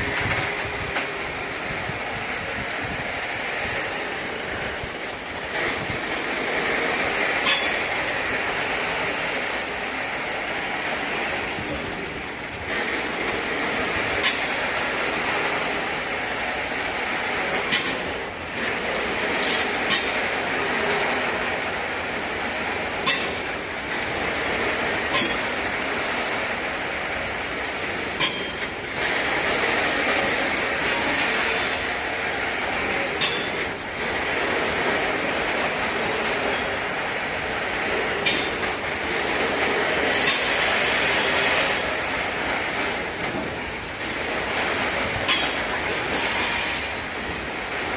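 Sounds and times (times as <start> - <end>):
steel wheels rumbling on rail: 0.0 - 47.9
wheels knocking over rail joints: 4.6 - 8.1, 11.8 - 15.9, 17.4 - 21.6, 22.2 - 25.7, 27.6 - 31.3, 32.4 - 46.2
high wheel squeal: 30.8 - 31.9, 40.0 - 42.1, 45.3 - 47.1.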